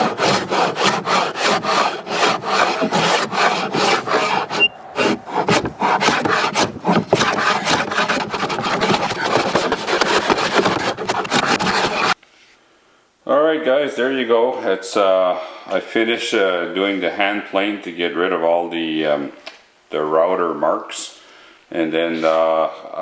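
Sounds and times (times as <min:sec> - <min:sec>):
hand tool rasping on wood: 0:00.0 - 0:12.2.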